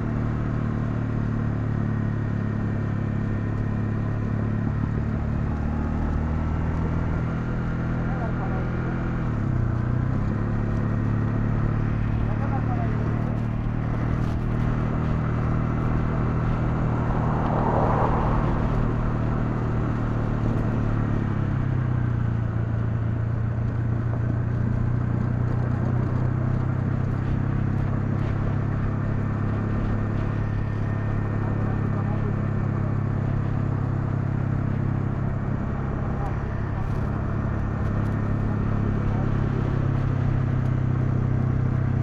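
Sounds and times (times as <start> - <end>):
motorcycle engine running: 0.0 - 42.0
wind rush: 13.0 - 20.8.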